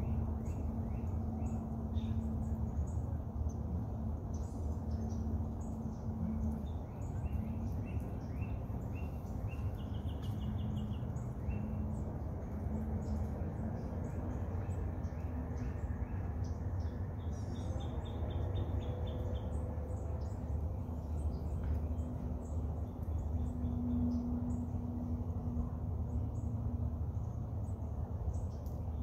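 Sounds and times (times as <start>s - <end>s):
small birds calling: 4.3s - 12.0s.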